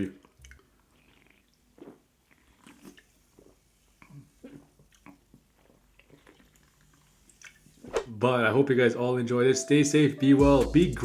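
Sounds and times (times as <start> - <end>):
person chewing wetly: 0.0 - 7.6.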